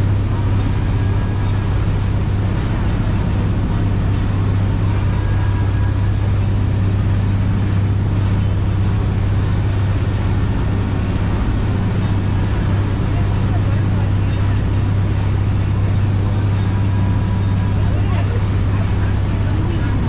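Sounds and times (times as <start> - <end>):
boat engine hum: 0.0 - 20.0
rush of noise: 0.0 - 20.0.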